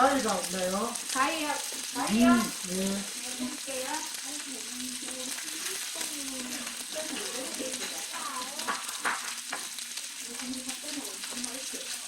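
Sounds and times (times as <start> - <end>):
pork sizzling on hot plate: 0.0 - 12.0.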